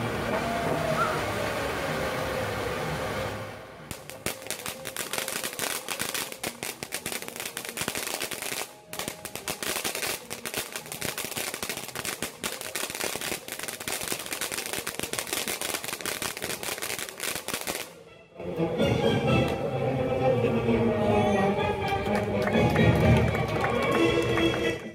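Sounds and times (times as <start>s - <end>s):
fireworks crackling pops: 3.9s - 17.9s.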